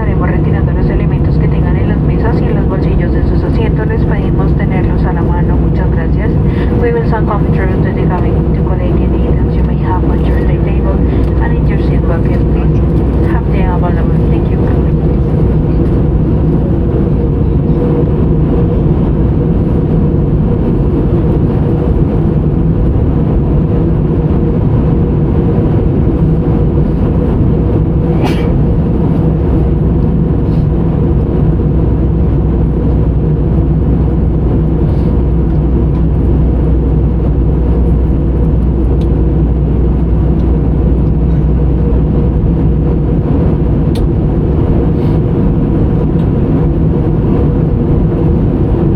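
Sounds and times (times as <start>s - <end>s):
jet airliner cabin drone: 0.0s - 48.9s.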